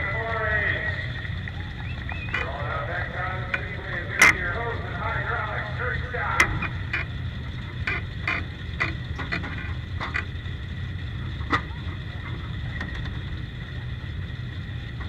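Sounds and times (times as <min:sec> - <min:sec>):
car engine rumbling: 0:00.0 - 0:15.0
sharp knocks or rattles: 0:03.5 - 0:04.6, 0:06.4 - 0:10.3.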